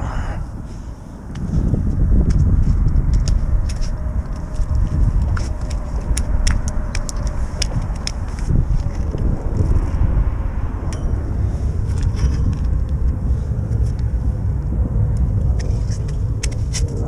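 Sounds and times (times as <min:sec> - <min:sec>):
wind buffeting microphone: 0:00.0 - 0:17.0
sharp clicks and rattles: 0:03.1 - 0:09.8.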